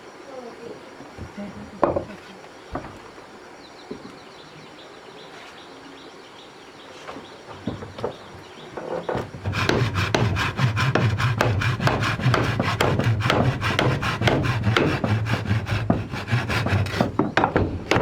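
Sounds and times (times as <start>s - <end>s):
hand tool sawing wood: 8.7s - 18.0s.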